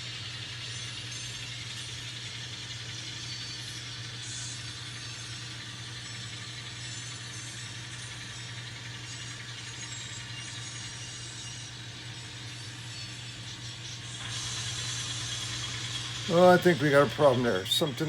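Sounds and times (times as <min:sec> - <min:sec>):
model train motor hum: 0:00.0 - 0:18.0
small wheels rattling on track: 0:14.2 - 0:18.0.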